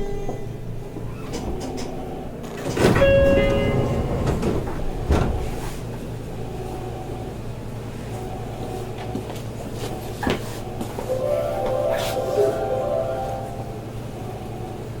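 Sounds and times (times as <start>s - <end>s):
train low hum: 0.0s - 15.0s
chime-like tones: 11.1s - 14.1s.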